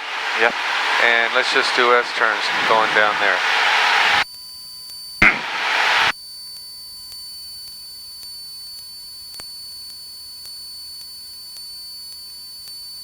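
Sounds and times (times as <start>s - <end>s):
high-pitched electrical whine: 0.0s - 4.2s, 5.2s - 6.1s.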